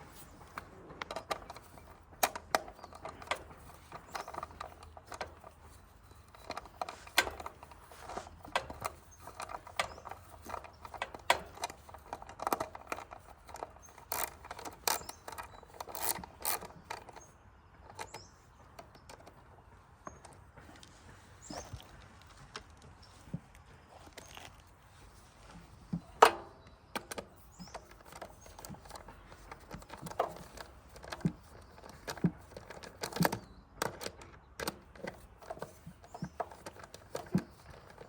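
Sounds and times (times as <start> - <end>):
hand tools clicking and knocking: 0.0 - 24.6, 25.5 - 38.0
ratchet clicking: 1.1 - 17.2.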